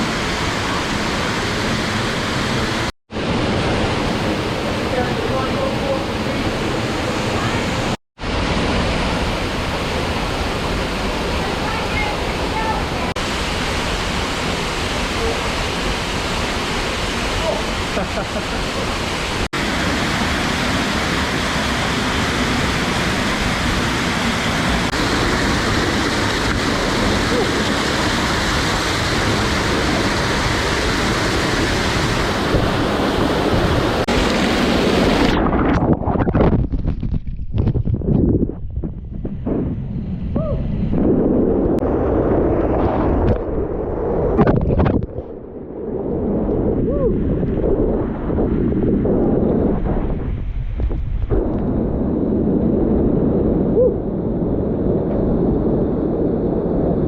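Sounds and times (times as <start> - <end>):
waterfall rushing: 0.0 - 35.4
wind buffeting the microphone: 3.5 - 57.0.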